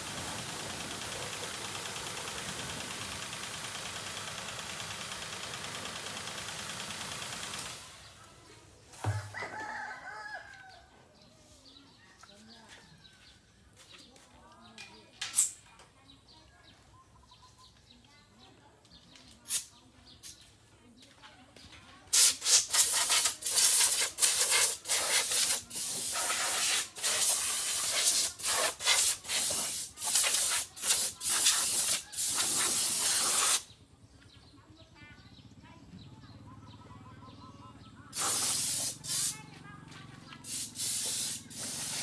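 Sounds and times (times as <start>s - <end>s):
spray gun hissing bursts: 0.0s - 8.1s, 22.1s - 33.7s, 38.1s - 39.4s, 40.4s - 42.0s
faint bird chirps: 8.2s - 18.6s.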